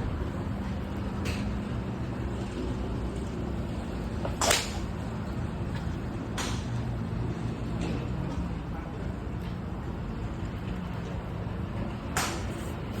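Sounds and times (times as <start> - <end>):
golf club striking ball: 4.2 - 4.9, 12.2 - 12.5.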